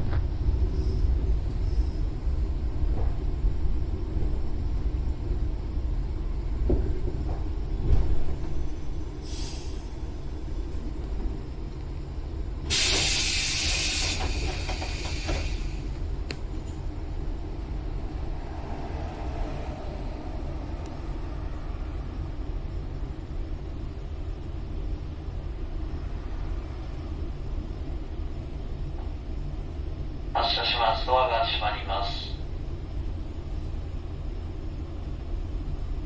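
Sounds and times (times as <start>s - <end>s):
train low rumble: 0.0s - 36.0s
compressed air hiss: 9.2s - 9.9s, 12.7s - 15.8s
train door clicks: 12.7s - 16.8s.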